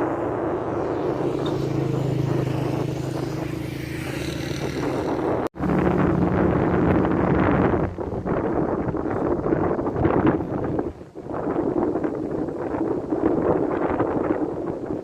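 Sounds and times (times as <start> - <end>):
vehicle engine running: 0.0 - 11.3
continuous rushing noise: 0.0 - 15.0.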